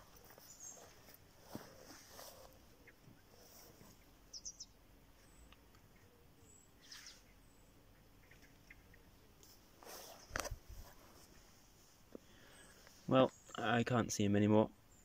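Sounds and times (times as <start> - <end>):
faint bird chirps: 0.0 - 9.4.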